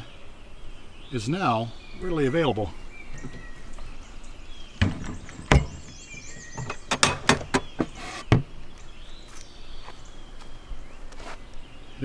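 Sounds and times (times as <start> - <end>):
birds chirping faintly: 0.0 - 12.0
wooden knocks and clunks: 3.1 - 4.0, 4.8 - 8.7.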